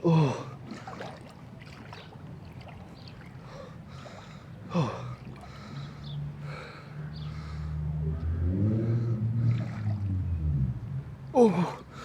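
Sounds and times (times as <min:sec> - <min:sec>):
vehicle engine running: 0:06.0 - 0:11.3.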